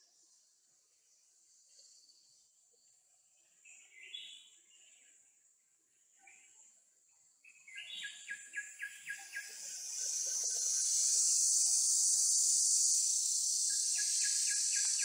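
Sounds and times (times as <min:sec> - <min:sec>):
high-pitched insect drone: 0:09.3 - 0:15.0.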